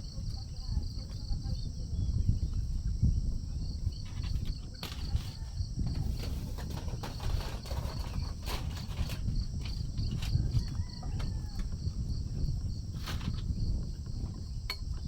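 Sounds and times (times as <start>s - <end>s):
wind rumble on microphone: 0.0s - 15.0s
scratchy rustling: 4.1s - 10.4s.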